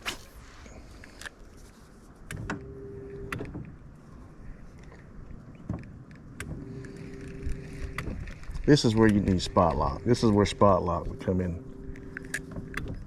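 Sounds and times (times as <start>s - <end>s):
electric motor whining: 6.5s - 13.0s.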